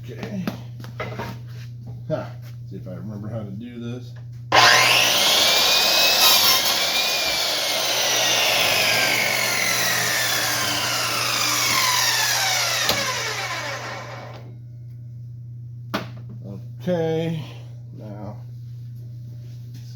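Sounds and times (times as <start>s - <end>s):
electric chop saw cutting wood: 4.5s - 14.5s.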